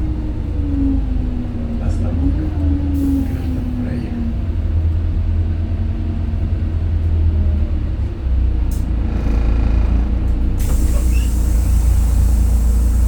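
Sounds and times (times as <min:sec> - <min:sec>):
bus engine rumbling: 0:00.0 - 0:13.0
whining tone: 0:08.9 - 0:11.4
brief hiss: 0:10.6 - 0:13.0.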